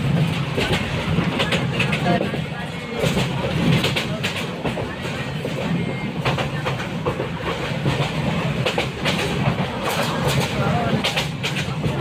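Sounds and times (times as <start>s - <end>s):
clacks and rattles: 0.0s - 2.4s, 6.2s - 12.0s
train wheels rumbling on rails: 0.0s - 12.0s.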